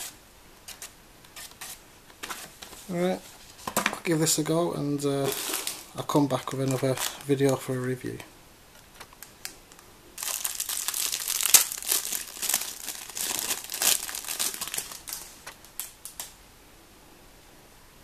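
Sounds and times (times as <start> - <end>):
packaging crinkling and rustling: 5.2 - 7.8, 8.9 - 16.3.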